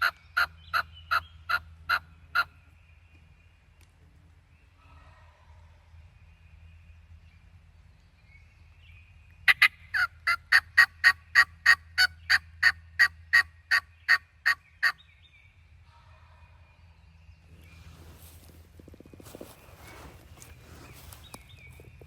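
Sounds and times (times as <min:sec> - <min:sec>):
turkey yelps: 0:09.5 - 0:15.0.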